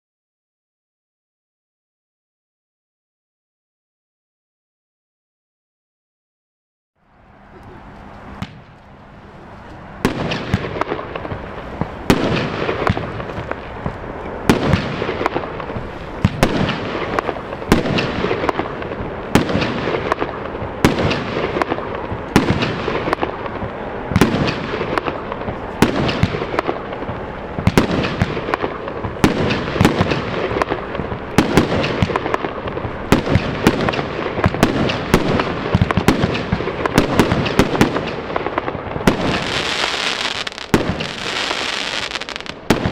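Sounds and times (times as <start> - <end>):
continuous firework crackle: 9.8 - 42.9
firework battery firing sharp cracks: 10.0 - 42.9
firework fuse hiss: 39.2 - 42.6.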